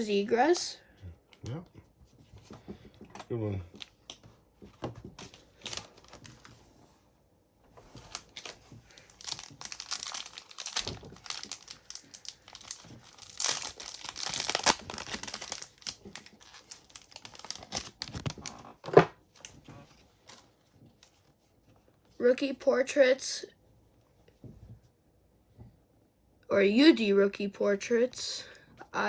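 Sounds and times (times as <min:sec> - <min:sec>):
wrappers tearing and crinkling: 0:05.2 - 0:06.6, 0:07.9 - 0:18.8.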